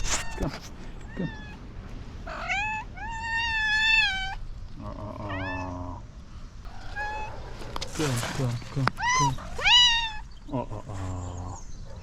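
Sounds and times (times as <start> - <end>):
cat meowing: 1.1 - 1.6, 2.2 - 4.4, 5.2 - 6.0, 6.7 - 7.4, 9.0 - 10.3.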